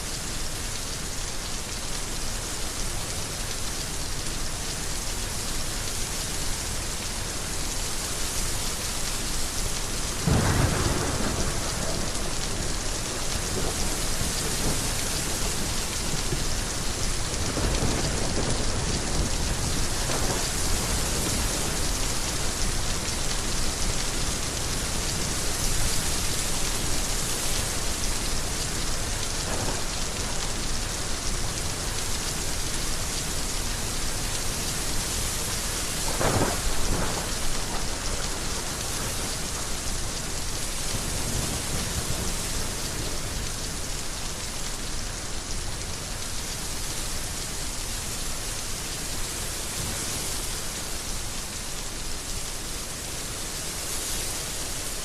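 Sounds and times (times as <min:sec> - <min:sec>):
heavy rain pouring: 0:00.0 - 0:55.0
thunder rumbling: 0:10.2 - 0:12.1.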